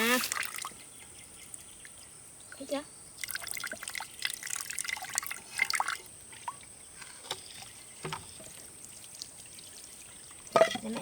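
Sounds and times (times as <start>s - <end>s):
water trickling into a container: 0.0s - 11.0s.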